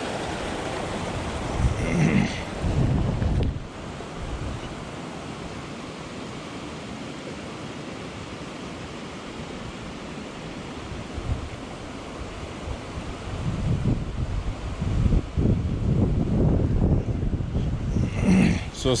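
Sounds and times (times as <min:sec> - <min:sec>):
wind buffeting microphone: 0:00.0 - 0:04.8, 0:12.2 - 0:19.0
creek water rushing: 0:00.0 - 0:19.0.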